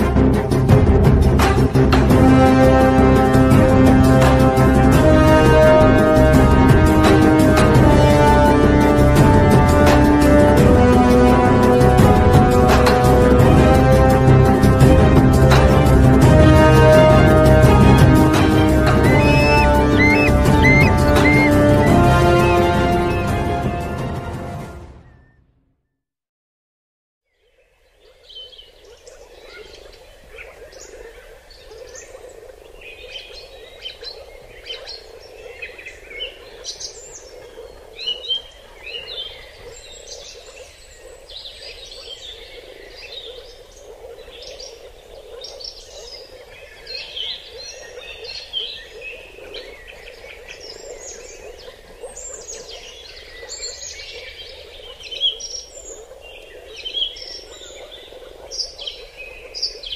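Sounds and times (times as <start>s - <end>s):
forest birds chirping: 17.6s - 23.6s, 27.3s - 59.9s.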